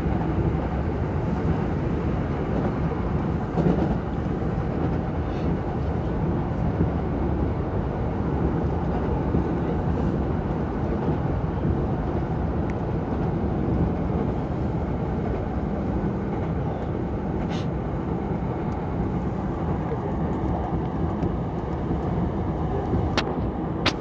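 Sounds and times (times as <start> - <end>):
train wheels rumbling on rails: 0.0 - 24.0
short sharp click: 23.2 - 24.0.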